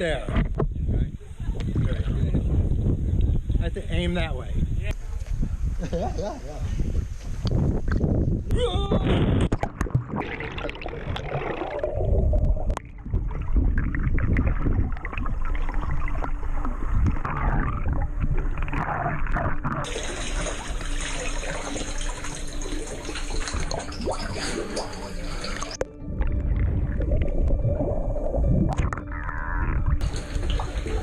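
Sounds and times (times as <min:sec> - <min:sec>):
water splashing around swimmer: 0:09.6 - 0:25.8, 0:30.0 - 0:31.0.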